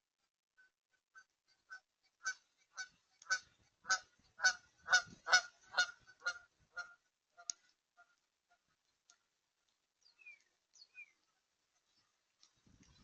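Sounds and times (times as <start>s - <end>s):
waterbird honking: 0.6s - 8.8s.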